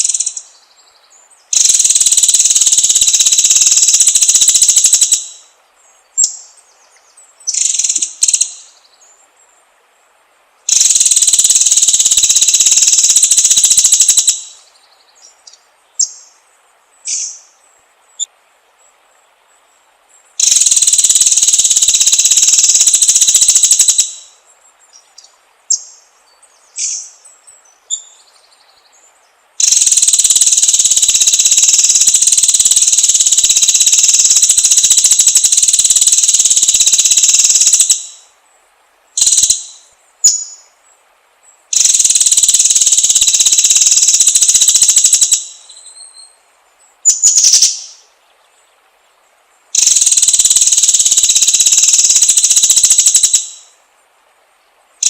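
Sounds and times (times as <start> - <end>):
shrill insect-like buzzing: 20.4 - 24.3, 29.6 - 38.2, 41.7 - 45.7, 49.8 - 53.7.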